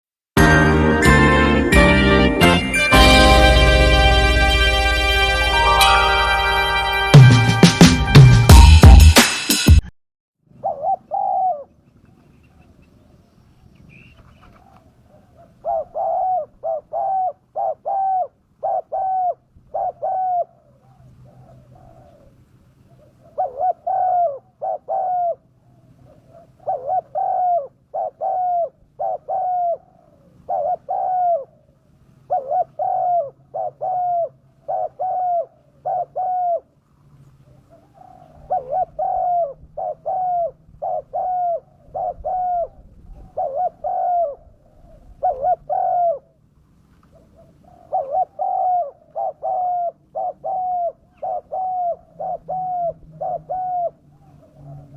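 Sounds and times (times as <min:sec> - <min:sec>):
dove cooing: 0:10.5 - 0:13.1, 0:13.8 - 0:46.4, 0:47.0 - 0:54.9.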